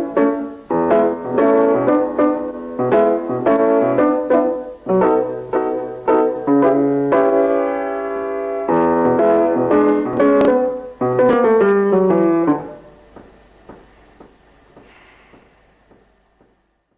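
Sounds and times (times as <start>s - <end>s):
piano chords: 0.0s - 14.8s.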